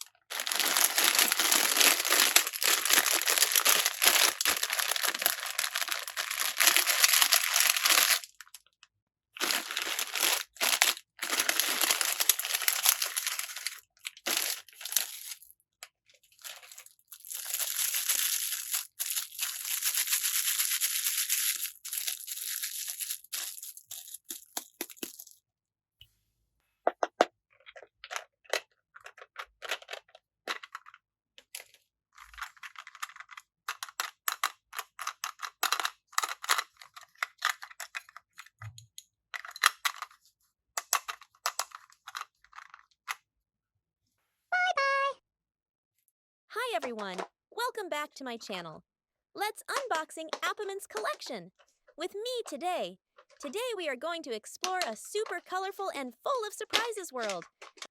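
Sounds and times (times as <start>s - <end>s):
packaging crinkling and tearing: 0.0s - 8.7s, 9.4s - 15.5s, 16.3s - 25.3s.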